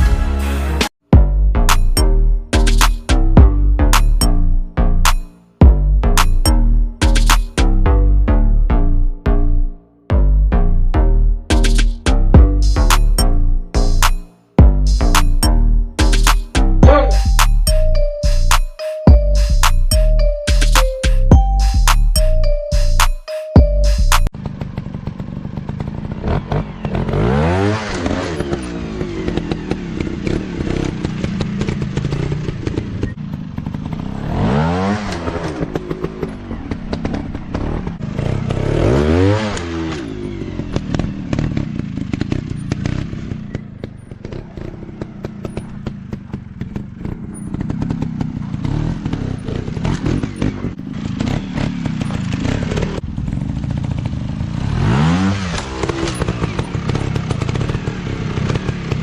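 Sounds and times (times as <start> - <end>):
dirt bike engines running: 23.9 - 59.0
dirt bike engine revving: 24.3 - 59.0.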